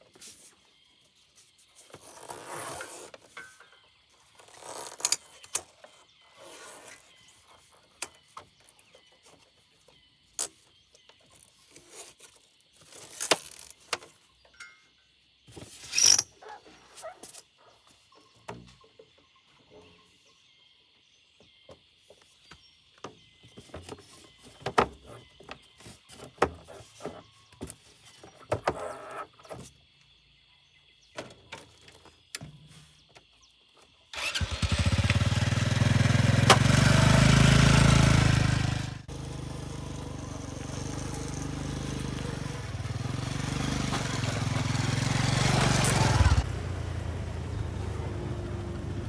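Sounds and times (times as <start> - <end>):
small engine running: 34.2 - 49.0.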